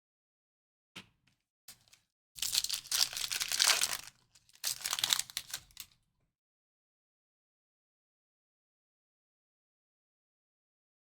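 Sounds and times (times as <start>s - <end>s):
foil wrapper tearing and crinkling: 1.7s - 6.0s.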